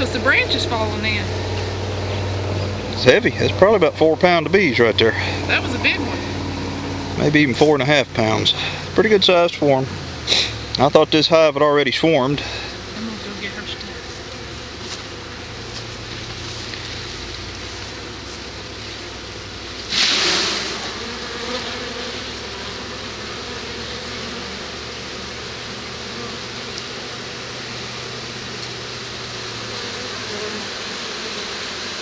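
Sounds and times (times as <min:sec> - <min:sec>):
bee swarm buzzing: 0:00.0 - 0:32.0
loud rush of noise: 0:00.7 - 0:11.3.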